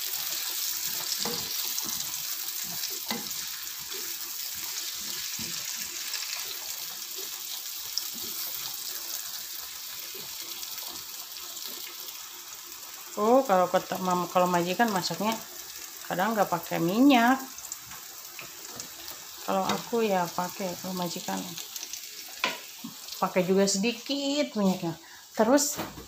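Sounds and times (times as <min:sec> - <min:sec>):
spatula stirring in a pan: 0:00.0 - 0:13.0, 0:17.4 - 0:23.7
food sizzling in oil: 0:00.0 - 0:25.9.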